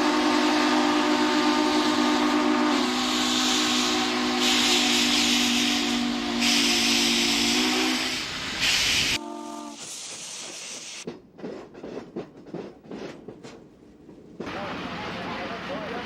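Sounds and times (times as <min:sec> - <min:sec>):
steam locomotive whistle: 0:00.0 - 0:10.4
steam hissing: 0:01.6 - 0:11.1.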